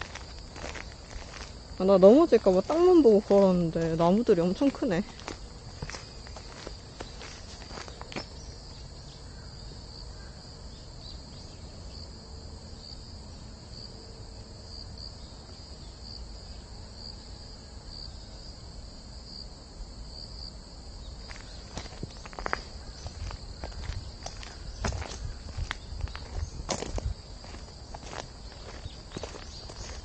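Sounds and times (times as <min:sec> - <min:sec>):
footsteps on path: 0:00.0 - 0:08.8, 0:21.2 - 0:30.0
insects droning: 0:00.0 - 0:30.0.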